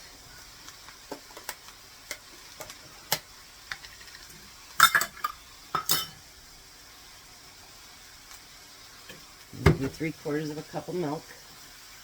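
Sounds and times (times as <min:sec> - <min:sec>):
faint sizzle: 0:00.0 - 0:12.0
spoon stirring food in skillet: 0:00.4 - 0:06.3.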